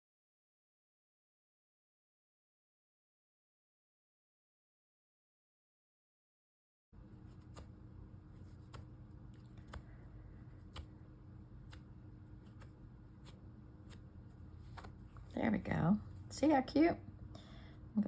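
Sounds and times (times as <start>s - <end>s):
scissors snipping cloth: 7.2s - 7.8s, 8.4s - 11.0s, 11.6s - 14.0s.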